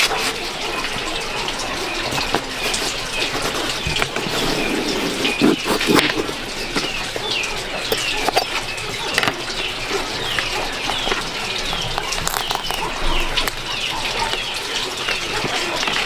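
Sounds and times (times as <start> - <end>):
small birds chirping: 0.6 - 16.0.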